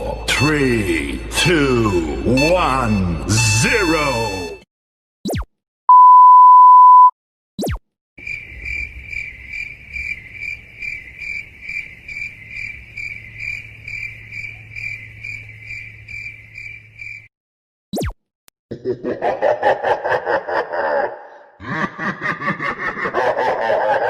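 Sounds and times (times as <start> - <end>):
steady beep: 5.9 - 7.1
crickets chirping: 8.2 - 17.3.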